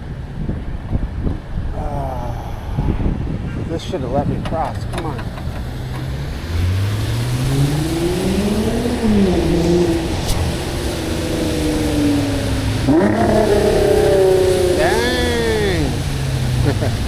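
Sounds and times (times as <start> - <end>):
car accelerating past: 4.6 - 17.0.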